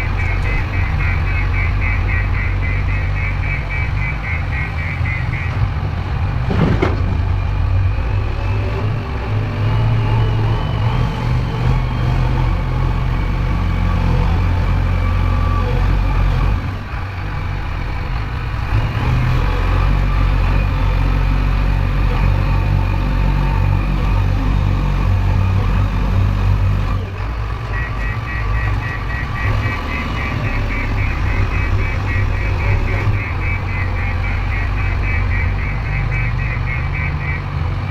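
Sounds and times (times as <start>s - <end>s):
diesel engine running: 0.0s - 37.9s
rapid high beeping: 27.7s - 37.8s.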